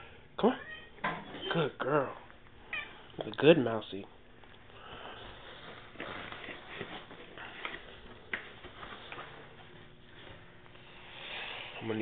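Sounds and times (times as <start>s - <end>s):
packaging rustling: 5.0s - 9.4s.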